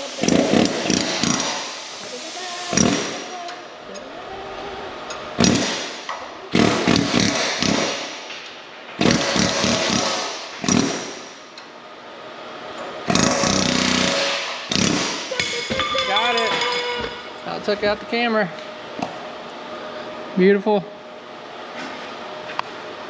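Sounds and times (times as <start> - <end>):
power tool hammering on steel: 0.0 - 1.8, 2.7 - 3.4, 5.4 - 8.3, 9.0 - 11.5, 13.1 - 17.2.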